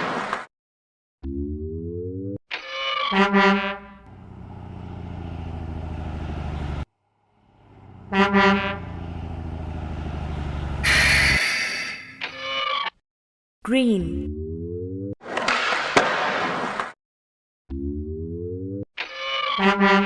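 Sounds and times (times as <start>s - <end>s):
truck horn toots: 3.1s - 4.1s, 7.8s - 9.4s, 10.7s - 12.1s
engine running: 3.9s - 11.4s
loud air hiss: 10.8s - 12.0s.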